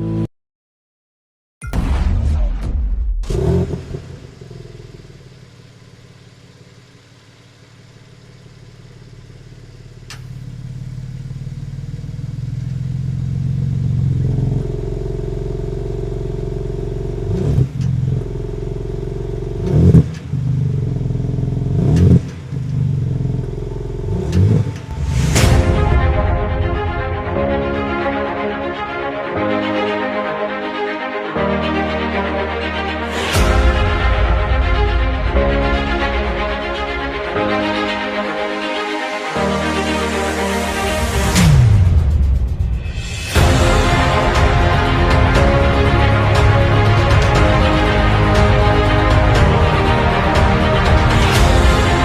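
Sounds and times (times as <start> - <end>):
car engine revving and idling: 3.2 - 27.1, 39.6 - 52.0.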